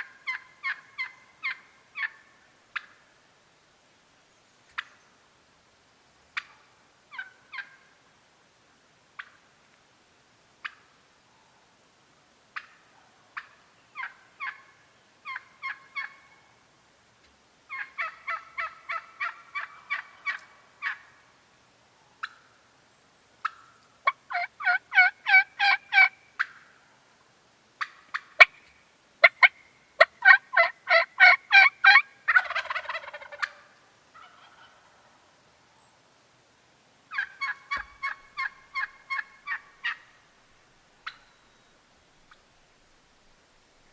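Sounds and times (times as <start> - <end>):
turkey yelping: 0.2 - 2.9, 13.4 - 16.4, 17.7 - 21.1, 23.4 - 26.6, 27.8 - 35.0, 37.1 - 40.2, 41.0 - 41.2.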